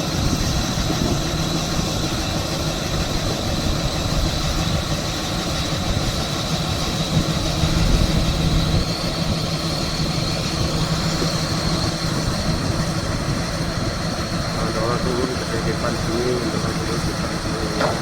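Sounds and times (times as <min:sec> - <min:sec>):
high engine whine: 0:00.0 - 0:18.0
ship engine rumbling drone: 0:00.0 - 0:18.0.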